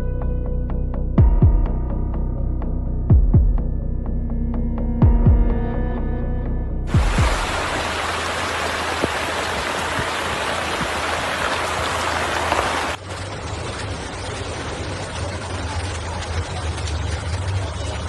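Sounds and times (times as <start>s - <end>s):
music with deep drum beats: 0.9s - 3.8s, 5.0s - 5.7s, 6.9s - 7.8s
running floodwater: 6.9s - 18.0s
torrential rain: 6.9s - 18.0s.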